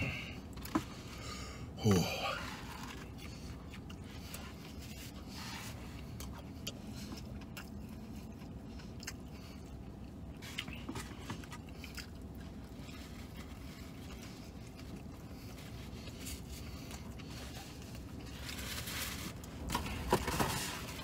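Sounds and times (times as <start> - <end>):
low steady hum: 0.0 - 21.0
man chewing food: 0.0 - 21.0
paper and cardboard rustling: 17.3 - 21.0.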